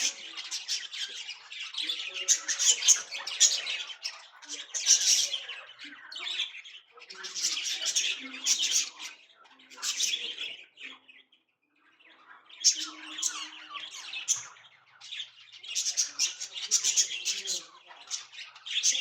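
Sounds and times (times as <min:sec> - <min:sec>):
bird chirping and squawking: 0:00.0 - 0:06.5, 0:12.6 - 0:19.0.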